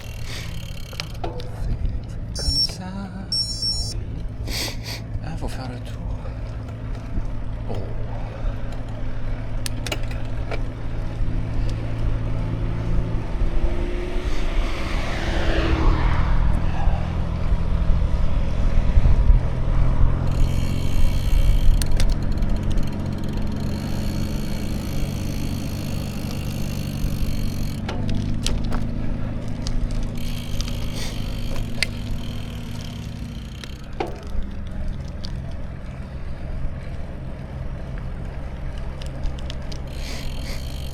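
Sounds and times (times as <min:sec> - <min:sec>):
road and wind noise: 0:00.0 - 0:40.9
vehicle engine hum: 0:00.0 - 0:40.9
vehicle passing whoosh: 0:11.1 - 0:21.3.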